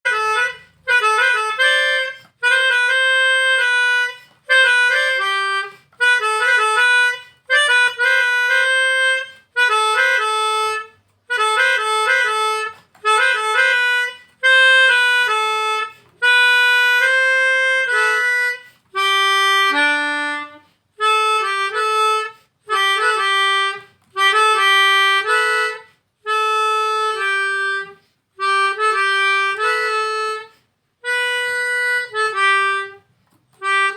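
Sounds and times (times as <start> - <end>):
harmonica playing slow melody: 0.1 - 33.9.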